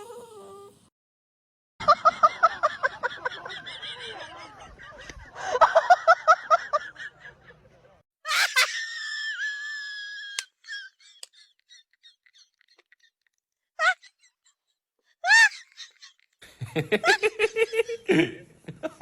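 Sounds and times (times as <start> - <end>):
high-pitched laughter: 8.3 - 18.3.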